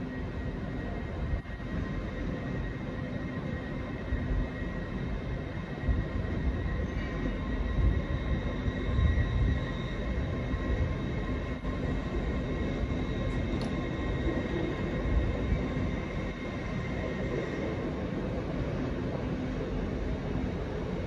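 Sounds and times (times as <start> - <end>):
train rumble: 0.0 - 21.0
train whine: 0.0 - 21.0.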